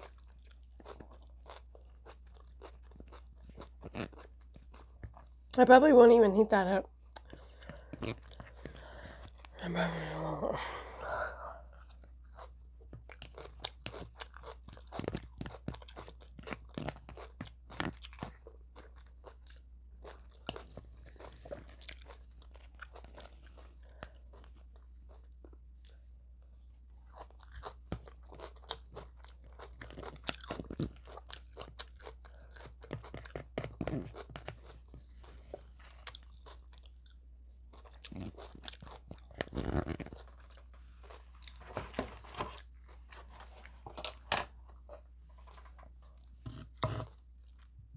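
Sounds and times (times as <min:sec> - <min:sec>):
chewing crispy fried chicken: 0:00.0 - 0:05.6, 0:07.1 - 0:09.6, 0:11.6 - 0:26.0, 0:27.0 - 0:43.8.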